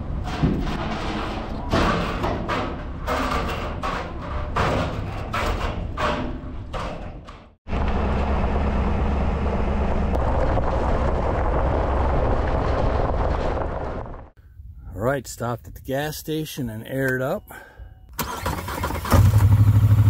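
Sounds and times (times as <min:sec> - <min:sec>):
vehicle driving rumble: 0:00.0 - 0:14.4.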